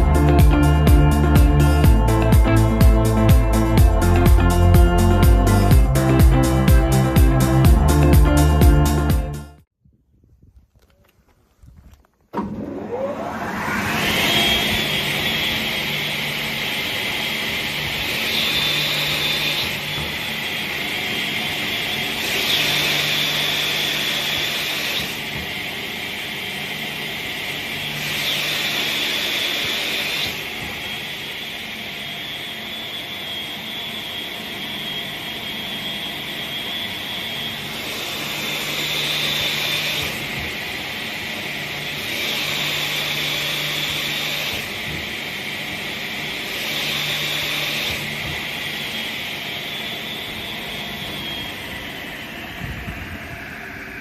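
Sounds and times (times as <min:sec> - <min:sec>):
saw whining: 0:00.0 - 0:09.1, 0:12.4 - 0:54.0
saw cutting wood: 0:12.4 - 0:52.7.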